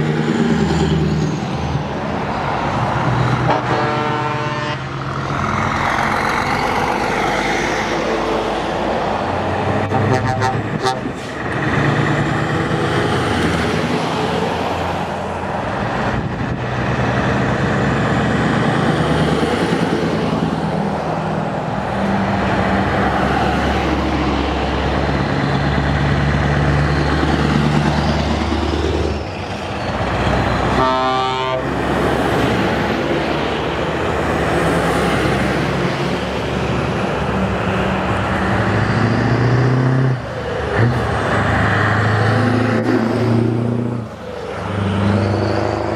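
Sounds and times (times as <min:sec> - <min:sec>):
truck diesel engines passing: 0:00.0 - 0:45.9
truck horns: 0:03.3 - 0:05.4, 0:09.6 - 0:11.6, 0:30.2 - 0:32.8, 0:37.9 - 0:44.1.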